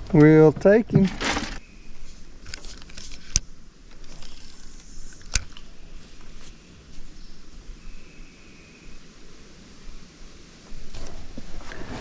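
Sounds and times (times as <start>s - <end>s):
light rustling and handling noise: 0.1s - 7.2s.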